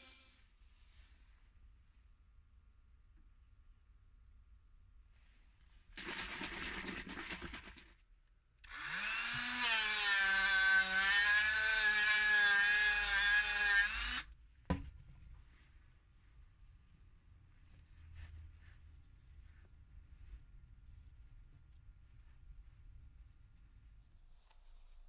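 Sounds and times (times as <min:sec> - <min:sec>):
power tool motor whining: 0:08.7 - 0:14.2.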